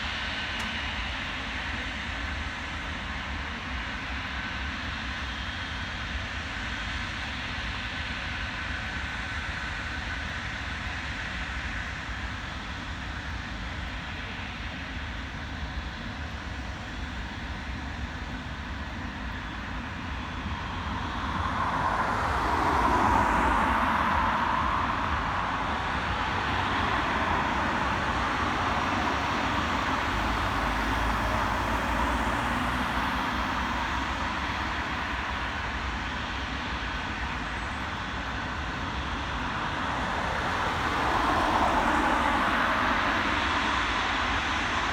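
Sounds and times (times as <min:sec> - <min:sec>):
jet airliner passing: 0:11.1 - 0:44.9.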